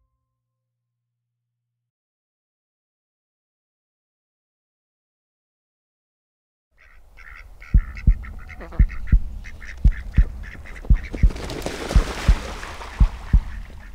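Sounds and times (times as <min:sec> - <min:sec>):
duck quacking: 0:06.8 - 0:13.9
low double thump: 0:11.9 - 0:13.6.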